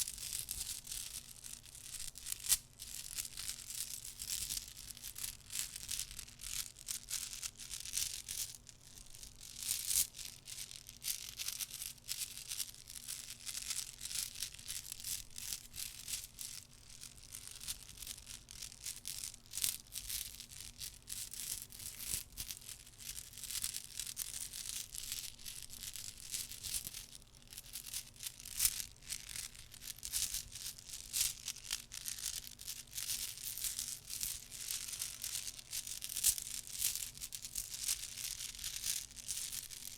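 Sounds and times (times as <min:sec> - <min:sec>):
small objects clicking and rustling: 0:21.8 - 0:39.9.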